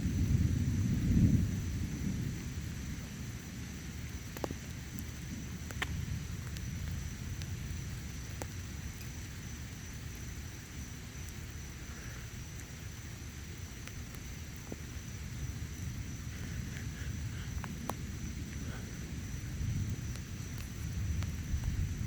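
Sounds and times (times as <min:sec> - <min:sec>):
thunder rumbling: 0:00.0 - 0:22.0
raindrops ticking: 0:00.1 - 0:22.0.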